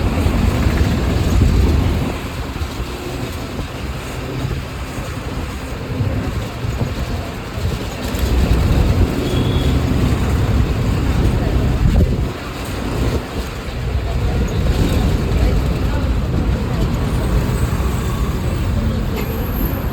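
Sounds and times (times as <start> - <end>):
bus engine rumble: 0.0 - 19.9
road noise: 0.0 - 19.9.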